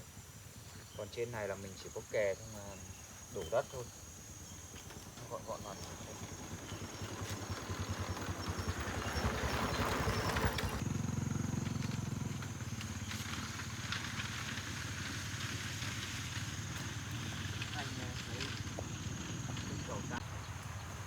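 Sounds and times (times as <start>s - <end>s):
engine running: 4.8s - 21.0s.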